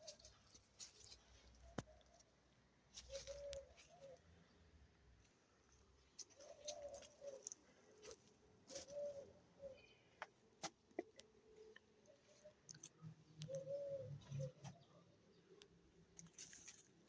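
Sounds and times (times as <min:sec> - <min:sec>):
faint low bird calls: 0:00.0 - 0:04.7, 0:05.8 - 0:10.3, 0:11.0 - 0:16.8.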